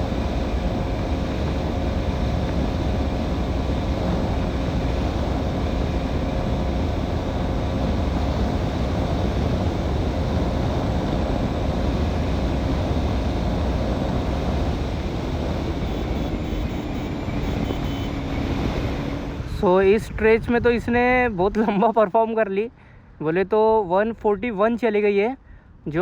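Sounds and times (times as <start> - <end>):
motorcycle engine at high revs: 0.0 - 19.5
wind rushing on microphone: 0.0 - 21.8.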